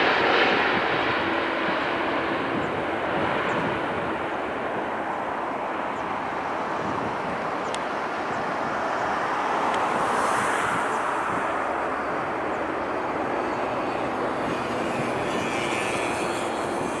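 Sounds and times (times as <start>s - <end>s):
jet airliner engine rush: 0.0s - 17.0s
faint high whine: 10.8s - 17.0s.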